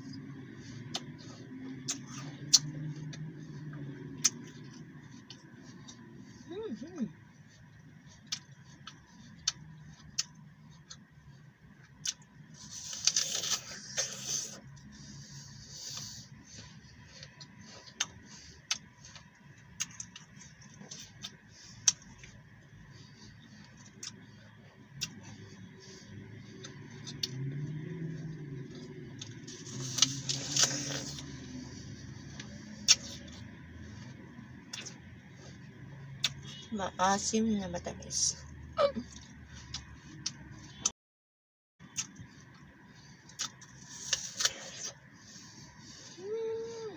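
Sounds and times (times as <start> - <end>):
apple crunching: 0.0 - 3.4, 11.9 - 14.8, 17.2 - 35.6, 43.3 - 45.0
mouth clicks: 36.2 - 36.7.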